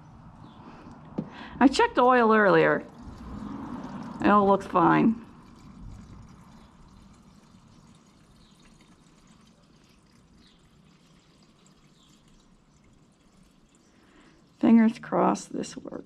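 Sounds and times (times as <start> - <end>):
gasoline trickling into a tank: 0.3 - 16.0.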